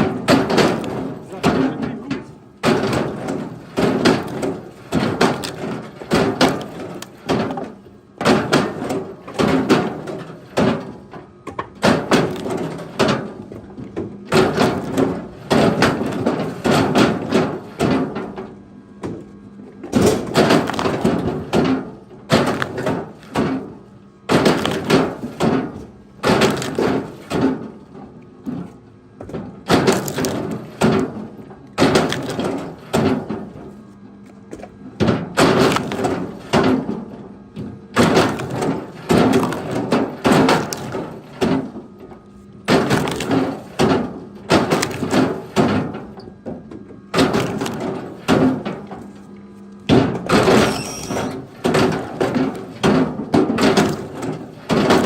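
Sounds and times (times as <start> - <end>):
firewood logs knocking together: 0.0 - 49.2, 49.8 - 55.0.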